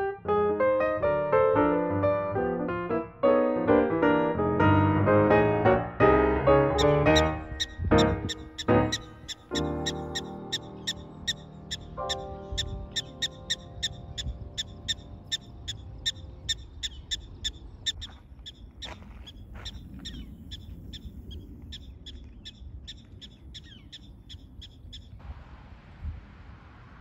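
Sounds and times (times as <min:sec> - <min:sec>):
background music: 0:00.0 - 0:16.3
bird chirping: 0:06.8 - 0:25.2
steady hiss: 0:25.2 - 0:27.0.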